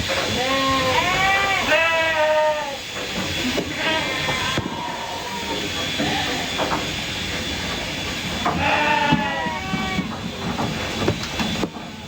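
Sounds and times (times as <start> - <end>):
steady noisy background: 0.0 - 12.0
sheep bleating: 0.4 - 2.8, 8.5 - 10.1.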